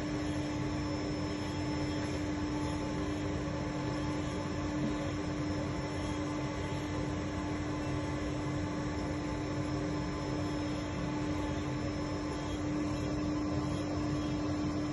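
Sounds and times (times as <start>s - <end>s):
machine tool humming: 0.0s - 14.9s.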